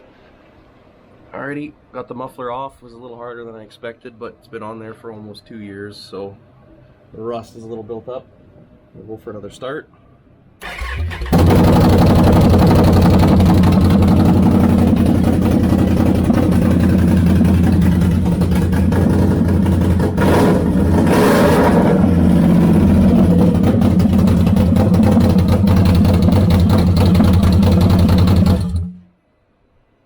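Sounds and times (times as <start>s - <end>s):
engine revving: 10.6s - 29.0s
loud unmuffled engine idling: 10.6s - 29.0s.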